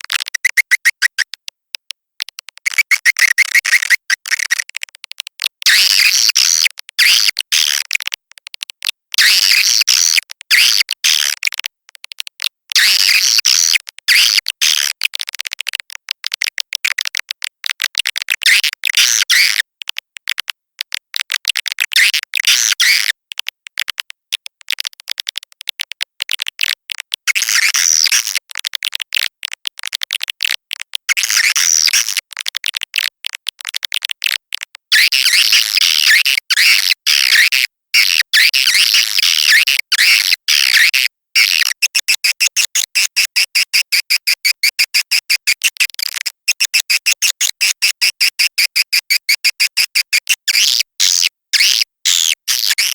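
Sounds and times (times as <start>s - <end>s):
high-pitched bird chirping and twittering: 50.6s - 52.9s.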